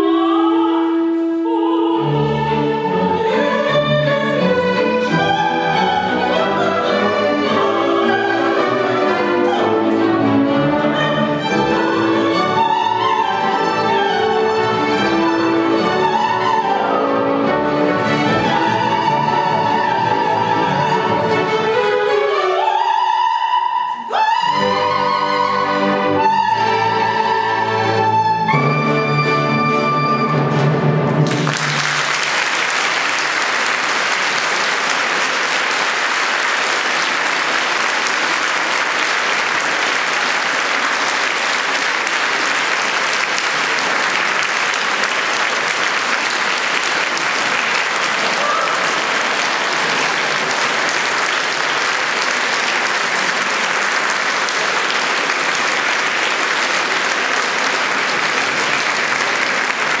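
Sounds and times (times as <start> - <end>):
audience applauding: 30.6 - 60.0.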